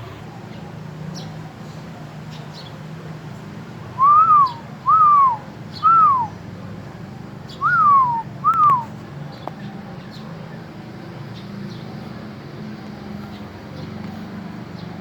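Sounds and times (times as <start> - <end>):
bird whistling rising falling notes: 4.0 - 6.3, 7.6 - 8.9.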